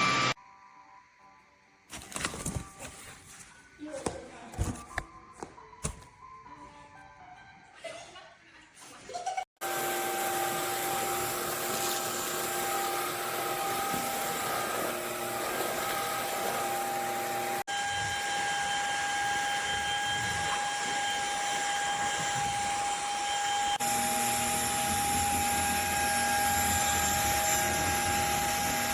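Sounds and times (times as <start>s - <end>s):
vacuum motor whining: 0.0s - 0.4s, 9.6s - 28.9s.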